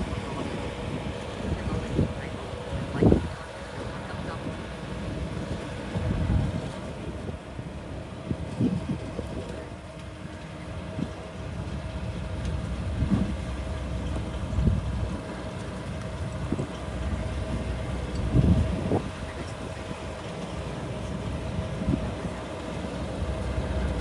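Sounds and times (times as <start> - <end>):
bulldozer diesel engine running: 0.0 - 8.3, 9.0 - 24.0.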